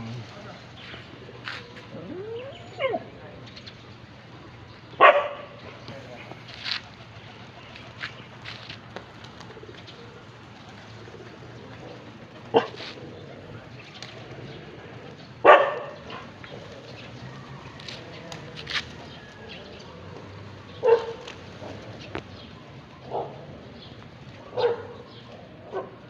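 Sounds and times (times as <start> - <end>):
pigeons in a loft: 5.8 - 15.2.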